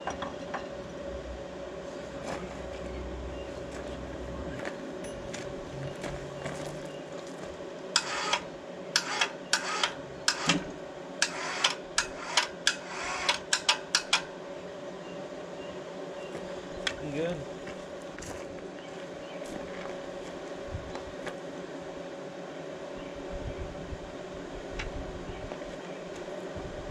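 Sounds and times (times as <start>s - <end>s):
propane burner rushing hum: 0.0s - 26.9s
sharp clicks and knocks: 9.0s - 14.3s.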